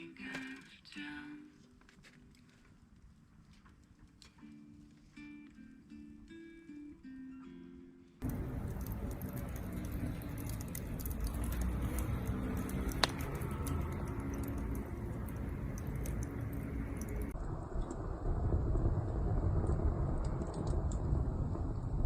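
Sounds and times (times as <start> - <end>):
quiet guitar music: 3.5 - 17.3
low steady rumble: 8.2 - 22.0
wood fire crackling: 8.2 - 22.0.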